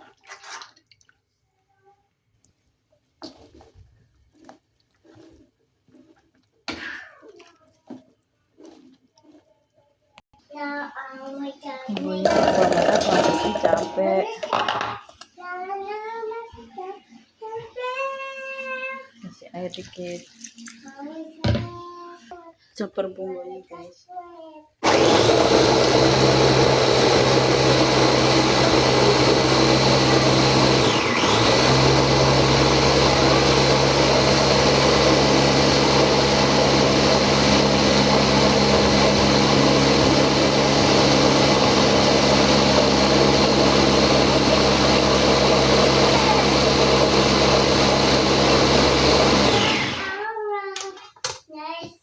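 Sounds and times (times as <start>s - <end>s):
electric blender running: 12.0s - 15.0s, 24.8s - 50.2s.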